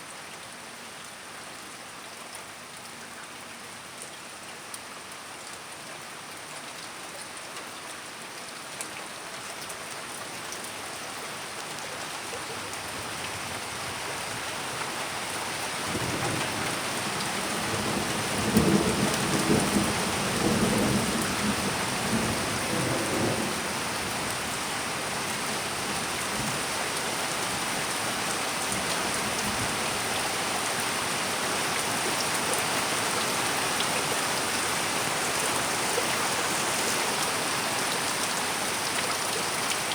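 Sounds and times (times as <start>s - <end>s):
heavy rain: 0.0s - 39.9s
low rumble of thunder: 15.8s - 24.6s.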